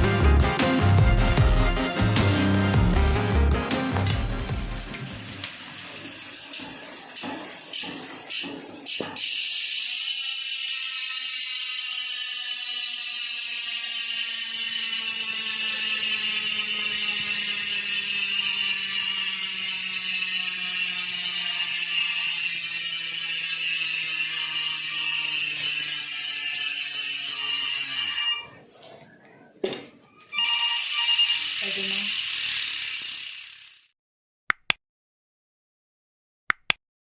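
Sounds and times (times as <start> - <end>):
bike hub ratchet clicking: 4.0 - 28.4, 30.6 - 33.9.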